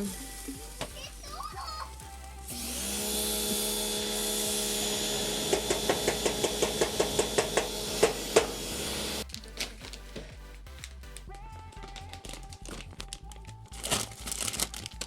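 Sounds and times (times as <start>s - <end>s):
hamburgers sizzling on a grill: 0.0s - 9.2s.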